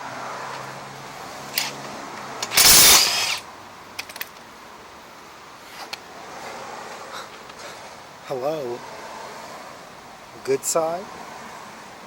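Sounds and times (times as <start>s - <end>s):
hand tools clicking on metal: 2.4s - 3.4s
loud metal rattling: 2.4s - 3.4s.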